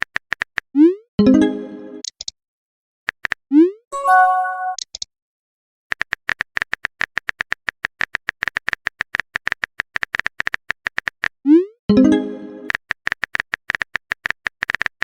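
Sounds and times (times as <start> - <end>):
short pitched chime: 4.0 - 4.8.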